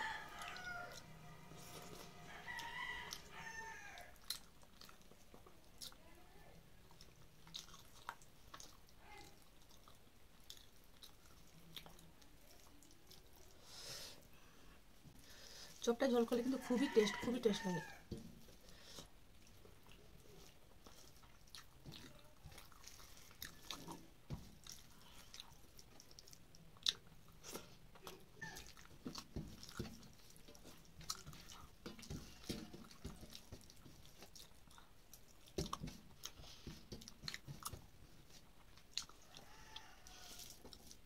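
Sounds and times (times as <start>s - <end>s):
chewing and mouth sounds: 0.1s - 14.3s, 18.0s - 41.0s
fingers mixing rice on metal plate: 17.8s - 41.0s.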